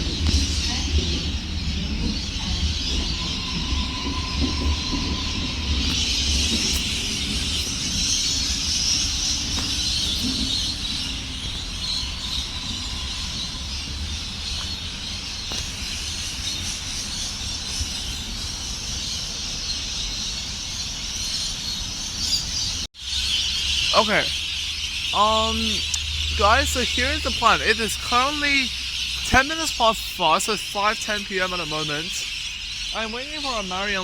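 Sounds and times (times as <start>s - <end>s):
train rumble and motor hum: 0.0s - 18.7s.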